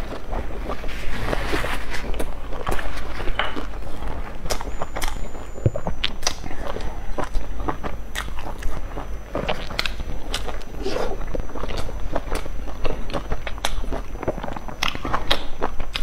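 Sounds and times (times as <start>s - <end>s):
person chewing: 0.0s - 16.0s.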